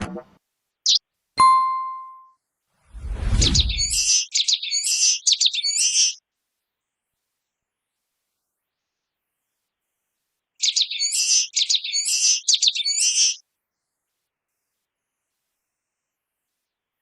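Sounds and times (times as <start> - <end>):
bell-like ding: 1.4 - 2.3
bird chirping buzzy calls: 3.2 - 6.2, 10.6 - 13.4.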